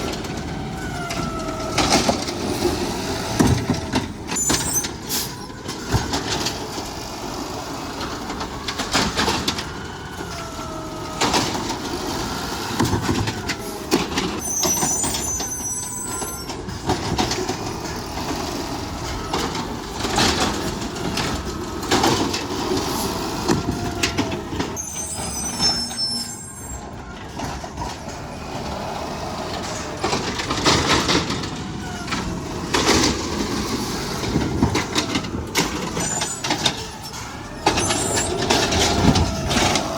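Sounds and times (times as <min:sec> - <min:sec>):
garbage truck engine: 0:00.0 - 0:39.9
hydraulic whine: 0:00.0 - 0:39.9
high squeals: 0:04.3 - 0:05.5, 0:13.7 - 0:16.8, 0:24.7 - 0:27.2, 0:35.6 - 0:39.9.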